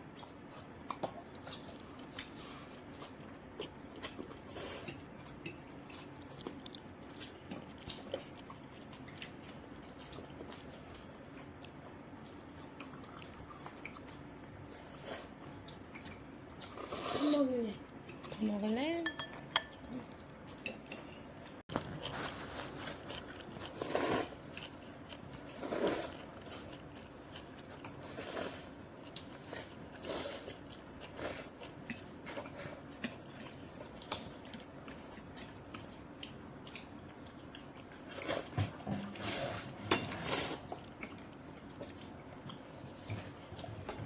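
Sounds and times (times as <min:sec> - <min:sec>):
person chewing close up: 0:00.0 - 0:17.2, 0:19.6 - 0:39.7, 0:40.3 - 0:44.0
slurping or scraping: 0:16.7 - 0:17.4, 0:22.0 - 0:24.4, 0:25.6 - 0:26.6, 0:39.1 - 0:40.8.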